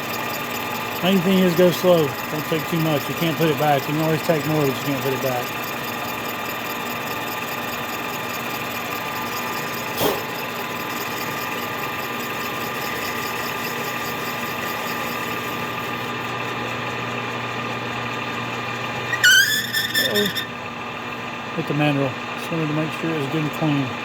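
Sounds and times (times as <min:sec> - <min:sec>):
milling machine hum and whine: 0:00.0 - 0:24.0
loud squeal: 0:19.0 - 0:20.6.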